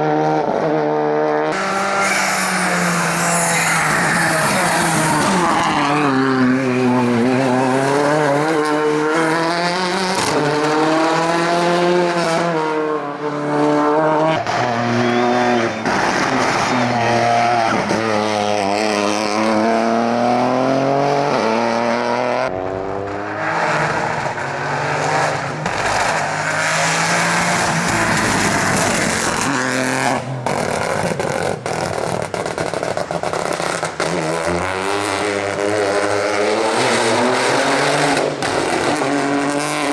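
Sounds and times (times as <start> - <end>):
rally car engines revving: 0.0 - 39.9
tyres squealing: 1.6 - 9.4.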